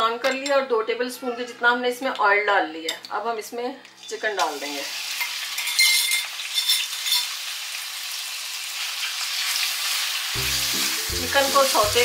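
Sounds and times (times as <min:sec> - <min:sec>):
metal spoon clinking on glass bowl: 0:00.2 - 0:00.7, 0:05.2 - 0:07.3
chicken sizzling in hot oil: 0:04.4 - 0:12.0.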